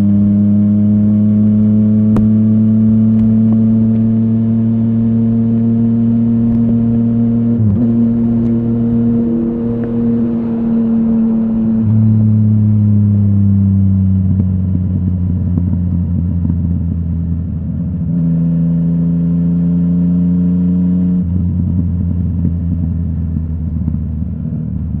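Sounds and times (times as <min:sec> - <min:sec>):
motorcycle engine running: 0:00.0 - 0:18.1, 0:21.2 - 0:25.0.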